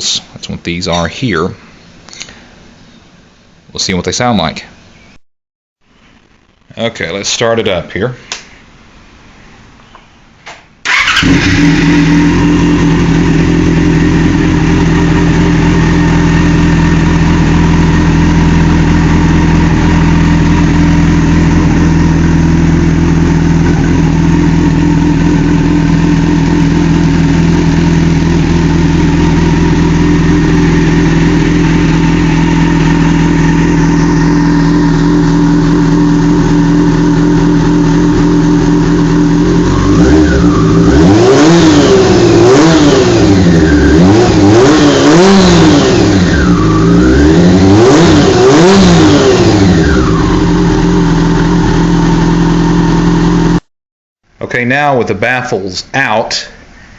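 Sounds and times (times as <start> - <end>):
motorcycle engine starting and idling: 10.8 - 53.6.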